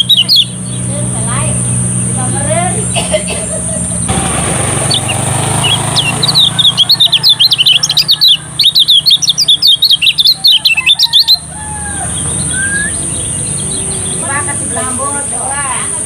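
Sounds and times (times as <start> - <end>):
white-eye singing high chirps: 0.0 - 2.3, 4.8 - 11.5.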